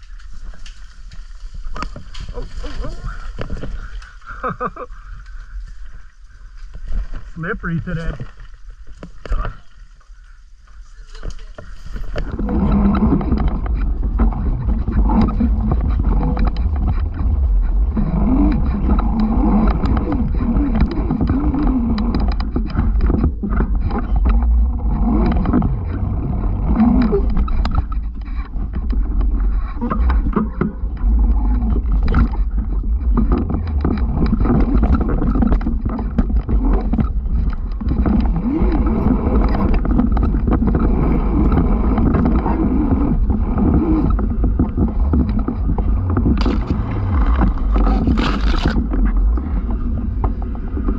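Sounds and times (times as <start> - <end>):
wind rumbling on microphone: 0.0 - 50.9
motorcycle engine revving: 11.5 - 50.9.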